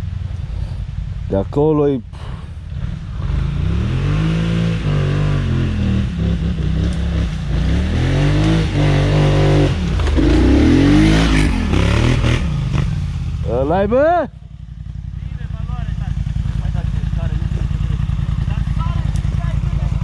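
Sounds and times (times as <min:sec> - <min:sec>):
atv engine revving: 0:02.2 - 0:20.0.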